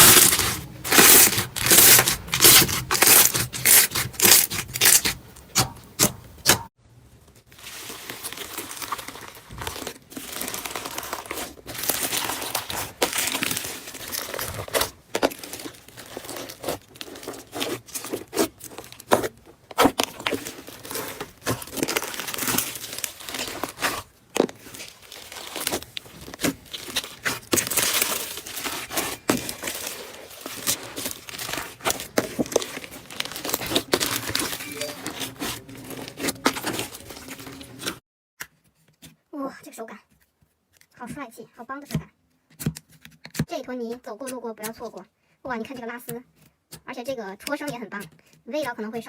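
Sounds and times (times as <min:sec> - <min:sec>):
slime crackling and popping: 0:00.0 - 0:06.6, 0:19.9 - 0:37.9.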